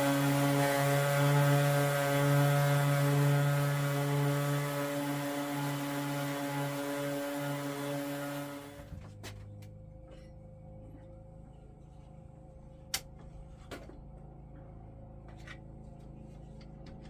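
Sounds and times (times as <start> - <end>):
electric sander on wood: 0.0 - 8.9.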